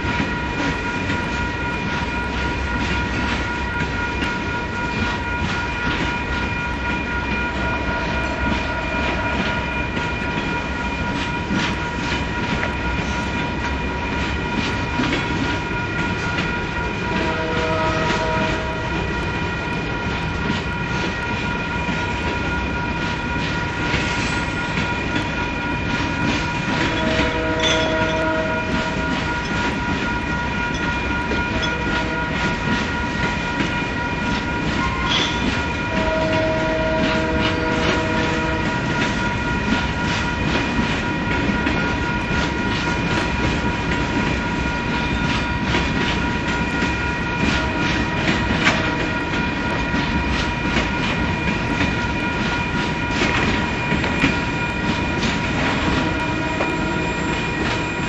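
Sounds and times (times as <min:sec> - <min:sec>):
crossing bell ringing: 0:00.0 - 0:58.0
train wheels clicking over rail joints: 0:08.5 - 0:58.0
train horn: 0:16.9 - 0:19.2, 0:26.6 - 0:29.3, 0:31.0 - 0:32.9, 0:34.7 - 0:39.4, 0:55.4 - 0:57.9.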